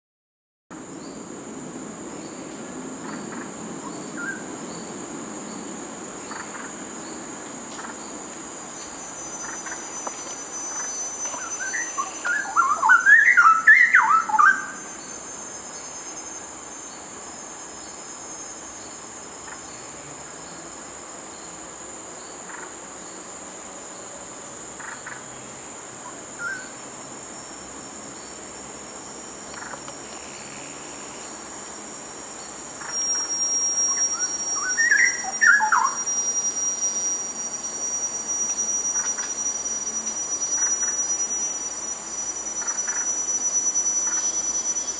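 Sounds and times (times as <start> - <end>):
steady high-pitched drone: 0.8 - 44.9
bird warbling song: 8.8 - 15.2, 32.4 - 36.3.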